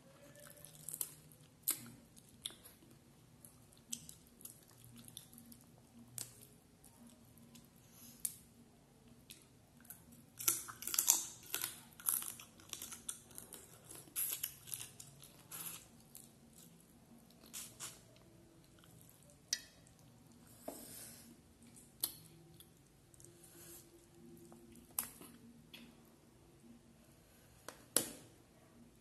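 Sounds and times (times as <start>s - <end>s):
person chewing food: 0.3s - 8.4s, 9.0s - 20.6s.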